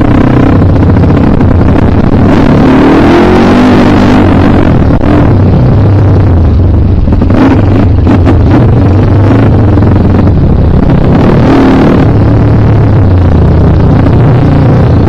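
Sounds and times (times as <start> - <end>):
trail bike engine under throttle: 0.0 - 15.0.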